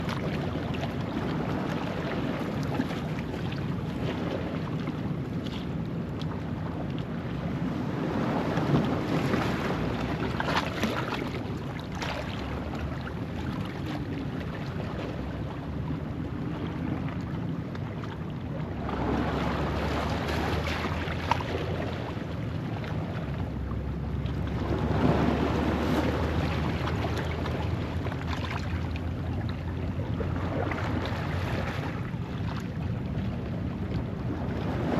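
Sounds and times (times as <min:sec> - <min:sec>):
wind rumble on microphone: 0:00.0 - 0:34.9
waves breaking on rocks: 0:07.6 - 0:14.8, 0:24.2 - 0:32.8, 0:34.2 - 0:34.9.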